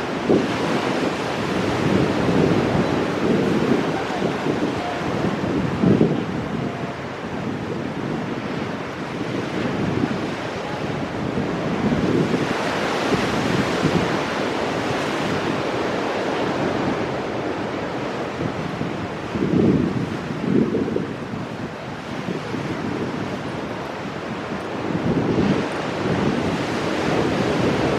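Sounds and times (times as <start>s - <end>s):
waves breaking over rocks: 0.0s - 17.6s
wind buffeting microphone: 0.0s - 27.9s.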